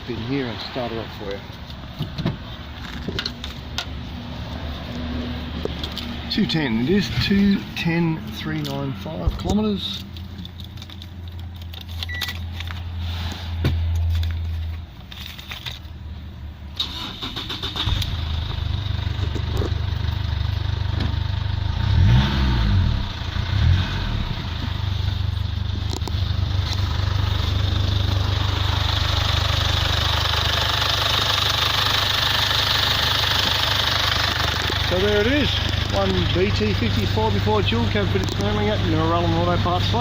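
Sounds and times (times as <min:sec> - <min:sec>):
diesel engine starting and idling: 0:15.7 - 0:40.0
engine revving: 0:21.6 - 0:40.0.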